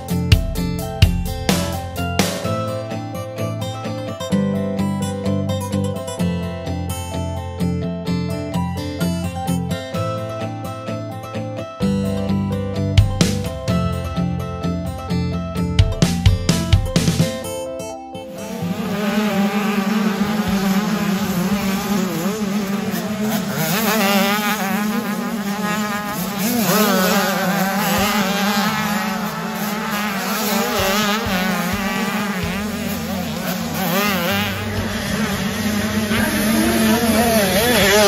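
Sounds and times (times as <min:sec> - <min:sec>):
motocross bikes revving: 0:18.3 - 0:38.0.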